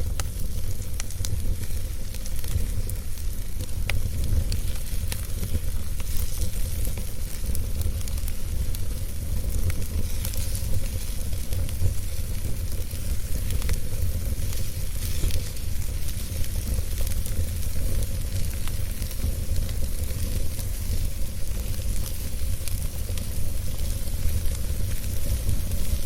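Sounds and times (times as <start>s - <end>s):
wood crackling and popping: 0.0s - 26.0s
wood fire rumbling: 0.0s - 26.0s.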